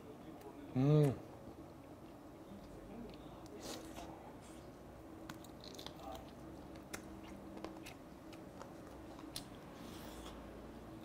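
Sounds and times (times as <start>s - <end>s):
person chewing chicken: 5.2s - 10.4s.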